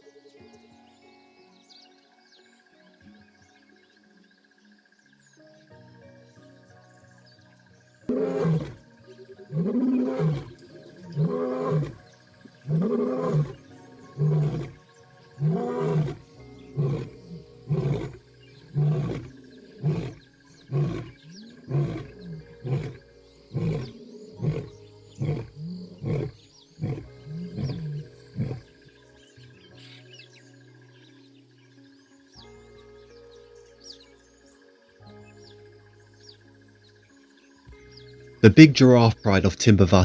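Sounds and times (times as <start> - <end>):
lion roaring: 8.1 - 29.0
lion grunting: 8.1 - 29.6.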